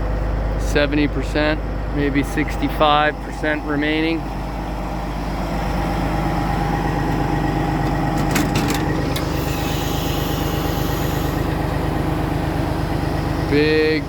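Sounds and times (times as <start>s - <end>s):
diesel truck engine idling: 0.0s - 14.0s
high hiss: 9.4s - 11.5s.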